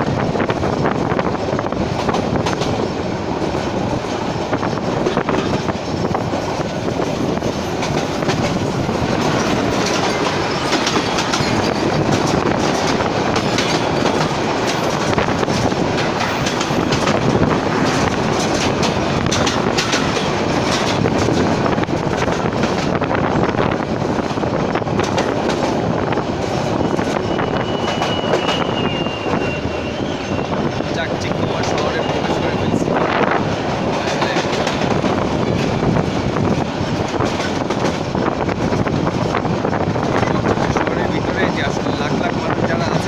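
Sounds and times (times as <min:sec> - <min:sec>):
train rumbling along track: 0:00.0 - 0:43.0
wheels clattering over rail joints: 0:04.7 - 0:23.6.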